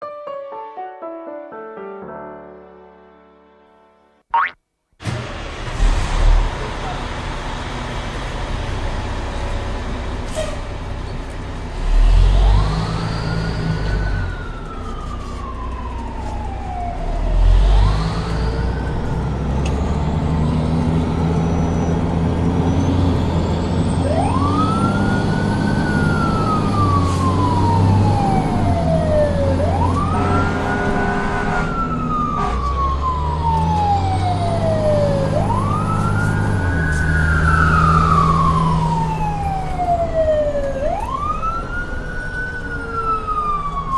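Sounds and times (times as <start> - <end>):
low engine rumble: 5.0 - 12.6
fire engine siren wailing: 11.7 - 43.9
loud low horn bursts: 30.0 - 33.0.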